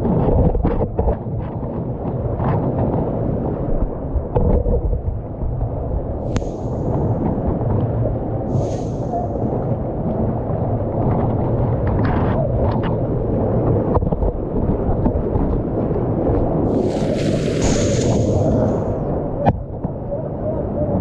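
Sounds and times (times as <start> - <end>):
river water rushing: 16.7 - 19.0
small splashes: 16.7 - 19.0.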